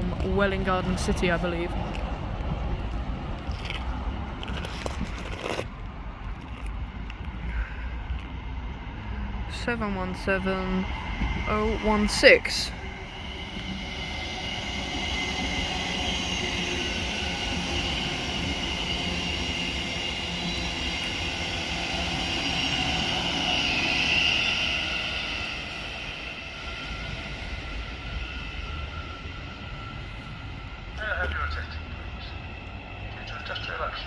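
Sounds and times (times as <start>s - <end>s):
rail rumble: 0.0s - 34.0s
electric train whining tones: 7.4s - 34.0s.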